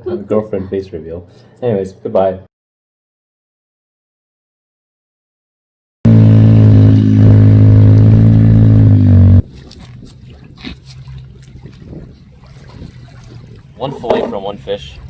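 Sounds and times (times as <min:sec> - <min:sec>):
low buzzing tone: 0:06.1 - 0:09.5.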